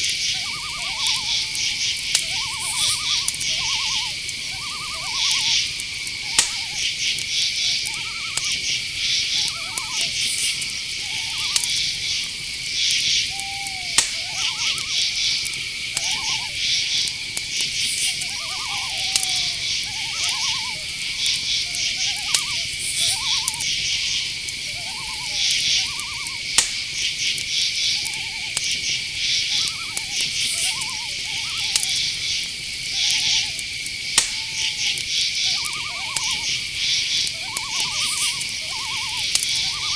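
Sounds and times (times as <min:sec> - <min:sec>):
insects chirping: 0:00.0 - 0:39.9
short repeated animal calls: 0:00.0 - 0:39.9
sharp click: 0:34.2 - 0:34.4.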